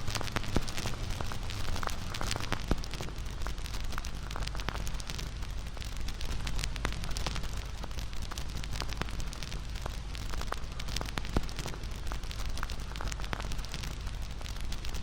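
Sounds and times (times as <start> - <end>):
burning wood popping: 0.0 - 15.0
campfire crackling: 0.0 - 15.0
low rumble of flames: 0.0 - 15.0.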